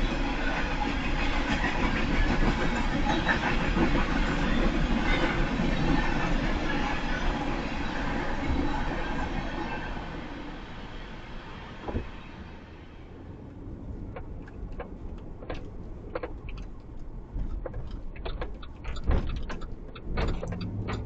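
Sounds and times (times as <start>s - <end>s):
passing train rumble: 0.0s - 21.0s
clicks and knocks: 14.1s - 21.0s.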